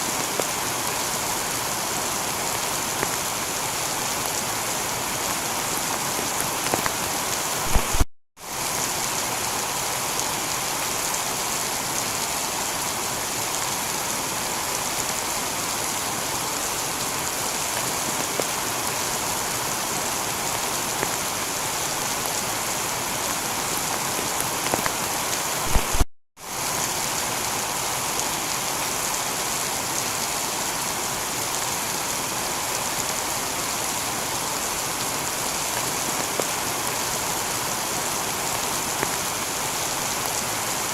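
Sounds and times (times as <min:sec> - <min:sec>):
heavy rain on a tiled roof: 0:00.0 - 0:40.9
sharp click: 0:07.7 - 0:08.1, 0:25.7 - 0:26.1.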